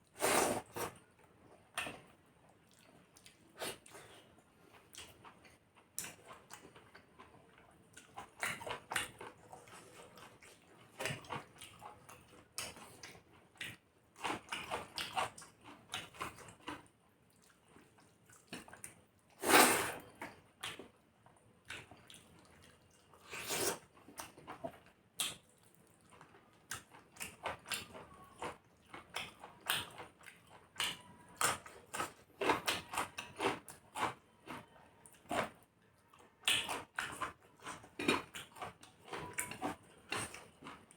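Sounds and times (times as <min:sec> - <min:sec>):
wet chewing and lip smacks: 0:24.1 - 0:40.9.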